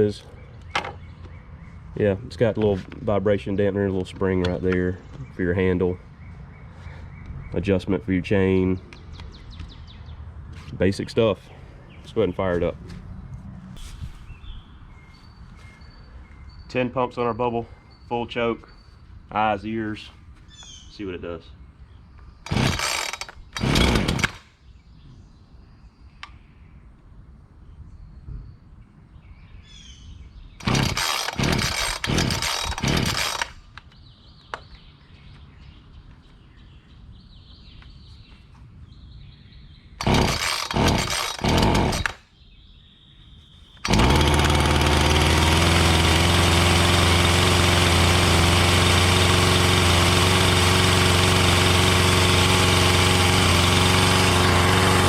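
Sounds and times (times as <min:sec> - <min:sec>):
recoil starter pulls: 0:22.4 - 0:24.4, 0:30.6 - 0:33.6, 0:40.0 - 0:42.2, 0:43.8 - 0:55.0
chainsaw engine idling: 0:22.5 - 0:24.4, 0:30.6 - 0:33.6, 0:40.0 - 0:42.2, 0:43.8 - 0:55.0.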